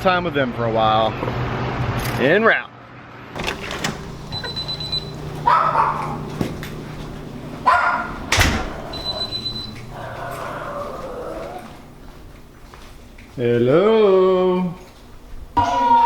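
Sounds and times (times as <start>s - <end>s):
steady low hum: 3.4s - 15.6s
dog barking: 5.4s - 6.4s, 7.6s - 9.3s.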